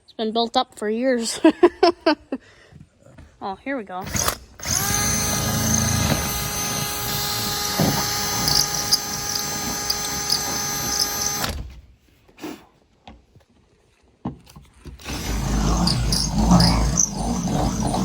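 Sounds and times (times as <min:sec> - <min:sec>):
power drill whining: 0:04.0 - 0:11.8, 0:15.0 - 0:18.0.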